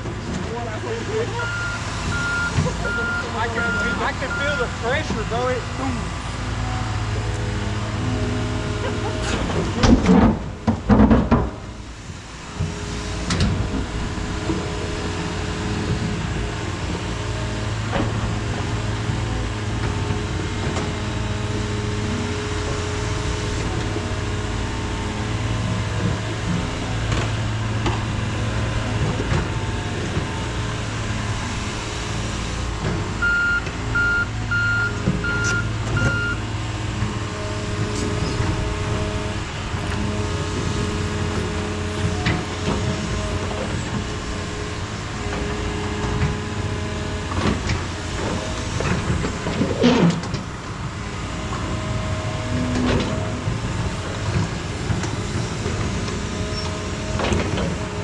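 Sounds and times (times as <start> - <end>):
heavy diesel equipment running: 0.0 - 58.0
backup alarm beeping: 1.4 - 4.8, 33.2 - 36.4.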